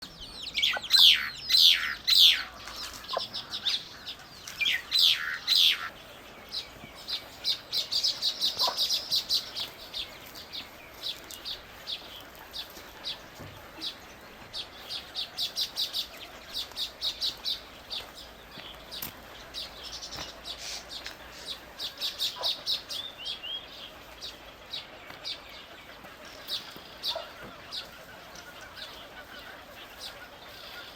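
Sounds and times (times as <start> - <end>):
birds chirping: 0.0 - 30.9
loud descending bird calls: 0.5 - 6.0.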